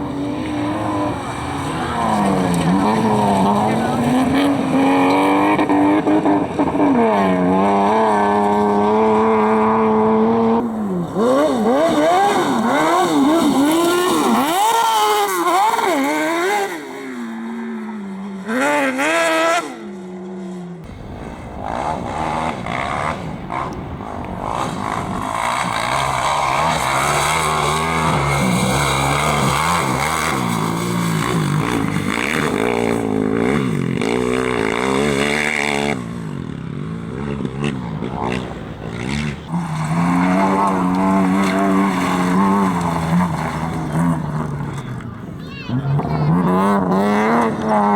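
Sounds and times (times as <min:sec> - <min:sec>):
engines revving hard: 0:00.0 - 0:20.2, 0:20.8 - 0:47.9
lower-pitched engine: 0:00.0 - 0:47.9.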